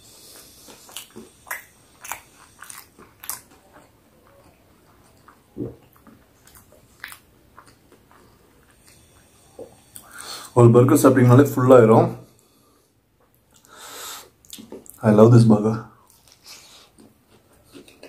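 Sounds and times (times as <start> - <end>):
man chewing burger: 0.0 - 10.5, 13.2 - 15.0, 16.0 - 18.0.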